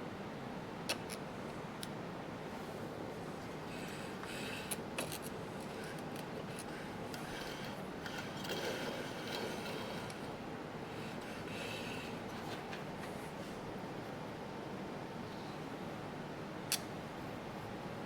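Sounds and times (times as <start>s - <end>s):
light scraping and rubbing: 5.7s - 10.4s.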